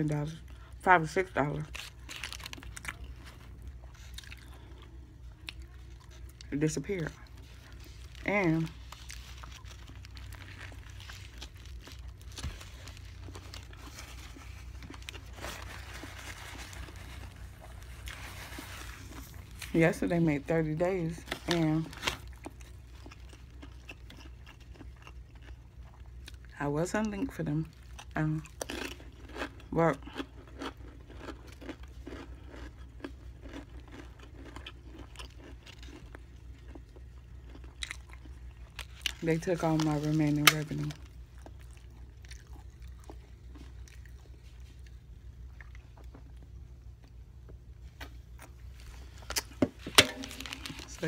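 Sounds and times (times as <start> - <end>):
chewing a sandwich: 1.5 - 19.9, 21.3 - 49.8
paper napkin crinkling: 7.3 - 20.0.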